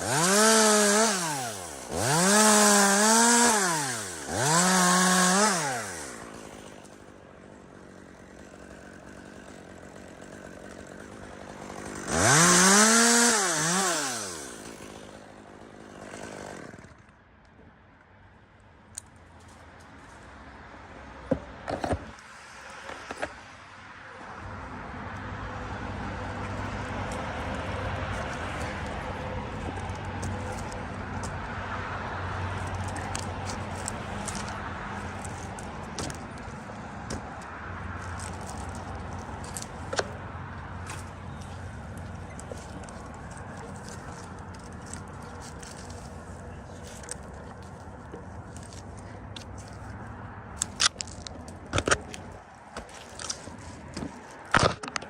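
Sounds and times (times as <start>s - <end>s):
chainsaw revving: 0.0s - 17.1s, 32.5s - 40.2s.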